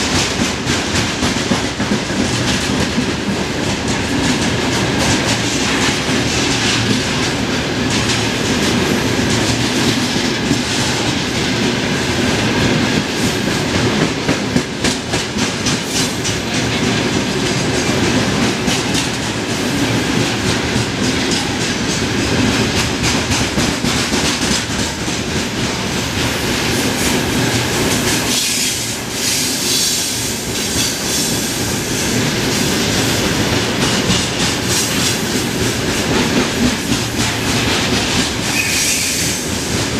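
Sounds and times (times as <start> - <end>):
clickety-clack over rail joints: 0.0 - 39.9
train wheels rumbling on rail: 0.0 - 39.9.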